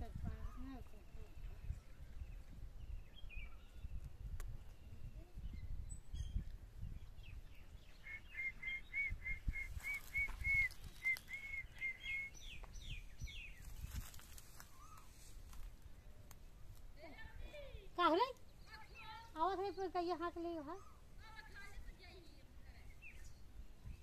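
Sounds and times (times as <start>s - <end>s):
bird calling repeated notes: 8.0s - 13.0s.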